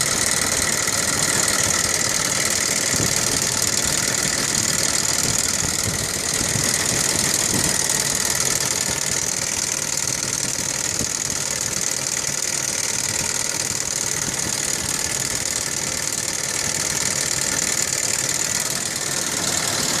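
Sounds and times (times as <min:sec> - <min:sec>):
car engine idling: 0:00.0 - 0:20.0
engine valve noise: 0:00.0 - 0:20.0.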